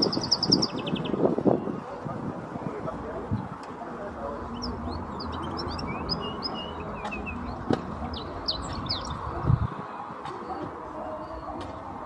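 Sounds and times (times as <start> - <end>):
canary singing: 0.0 - 1.2, 4.5 - 9.3.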